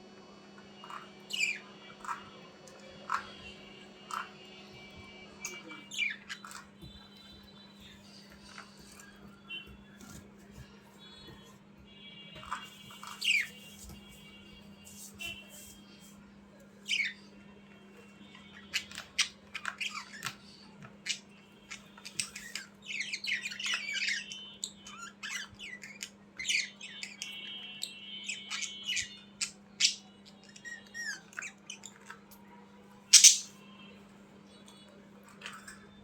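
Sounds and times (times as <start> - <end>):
budgerigars chattering: 33.1 - 33.5
loud bird squawk: 33.1 - 33.6.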